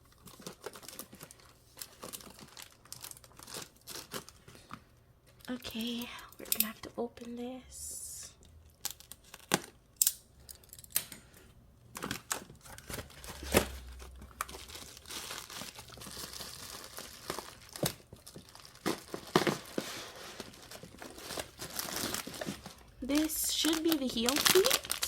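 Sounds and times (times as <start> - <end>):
packaging crinkling and tearing: 0.0 - 6.7, 8.6 - 9.8, 11.9 - 25.0.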